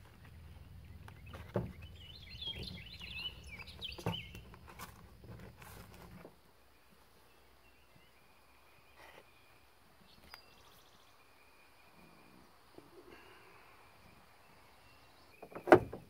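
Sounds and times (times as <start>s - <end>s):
bird twittering: 1.2s - 4.4s.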